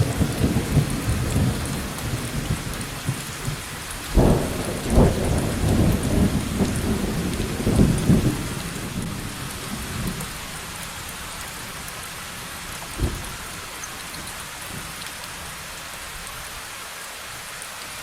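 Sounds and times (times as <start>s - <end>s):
rolling thunder rumble: 0.0s - 10.3s
steady rain hiss: 0.0s - 18.0s.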